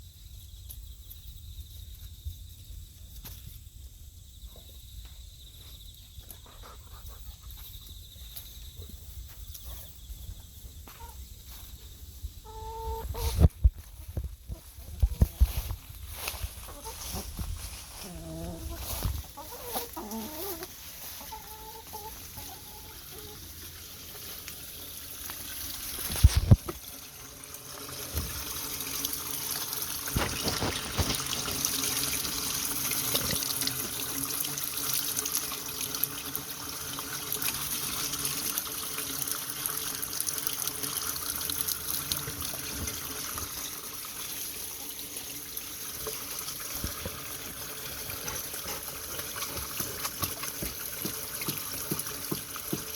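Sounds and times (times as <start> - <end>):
hens clucking: 12.4 - 13.5, 16.4 - 24.4
water trickling and splashing: 13.1 - 52.9.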